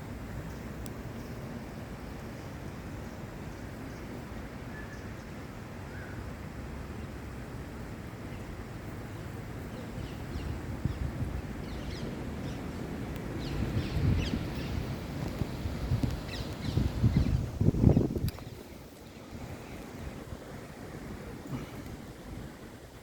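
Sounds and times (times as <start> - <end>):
wind rumbling on microphone: 7.1 - 23.0
small birds chirping: 9.1 - 20.8.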